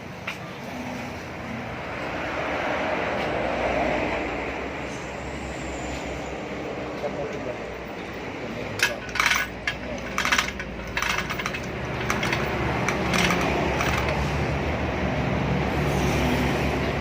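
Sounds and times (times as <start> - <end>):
metal tools clinking: 8.8 - 14.4.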